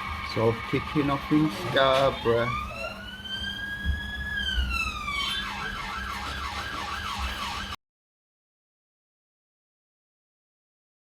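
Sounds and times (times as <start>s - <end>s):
emergency vehicle siren: 0.0s - 7.8s.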